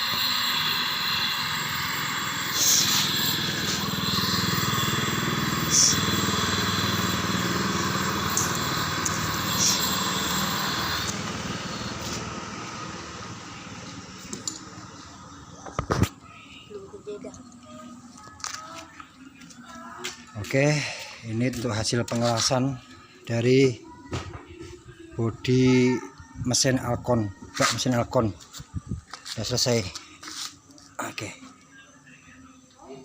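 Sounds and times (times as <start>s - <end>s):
welding hissing buzz: 0.0s - 14.3s.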